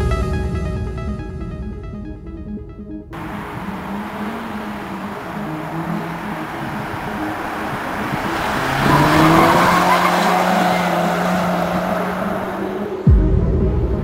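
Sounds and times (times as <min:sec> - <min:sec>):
car engine pulling hard: 0:03.2 - 0:13.1.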